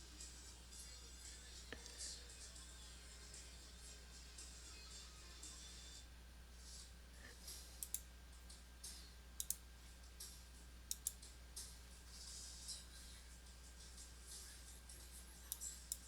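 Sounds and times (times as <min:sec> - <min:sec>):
sharp clicks: 0:09.4 - 0:09.6, 0:10.9 - 0:11.2.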